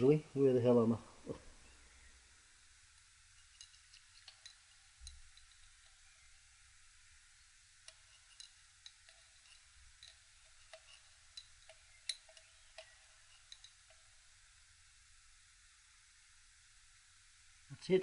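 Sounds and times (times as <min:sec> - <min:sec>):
light metallic clicks and taps: 0:07.8 - 0:14.1.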